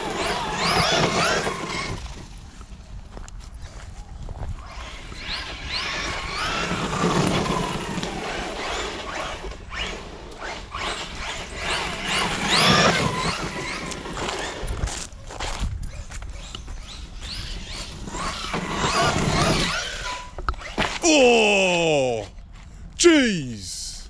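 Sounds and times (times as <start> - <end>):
electric motor whining: 0.0 - 2.2, 4.6 - 14.9, 16.4 - 21.0.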